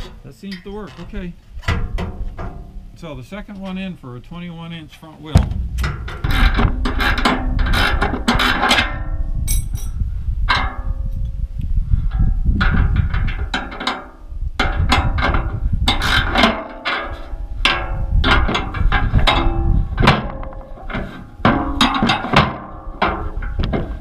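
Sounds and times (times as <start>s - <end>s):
metal parts clanking: 5.7s - 10.8s.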